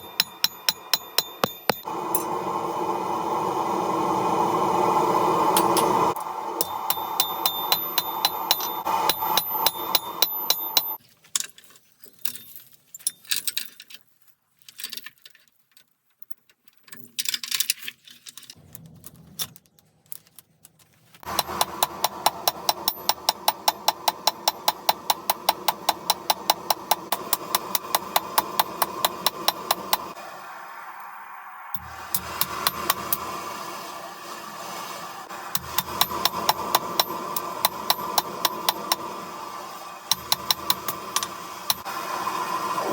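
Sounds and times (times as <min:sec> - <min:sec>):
metal clinks: 0:00.0 - 0:02.3
hammer striking steel on anvil: 0:00.0 - 0:02.4, 0:05.6 - 0:11.0, 0:21.2 - 0:30.2, 0:35.6 - 0:39.2, 0:40.1 - 0:41.9
steady hum: 0:00.0 - 0:11.0.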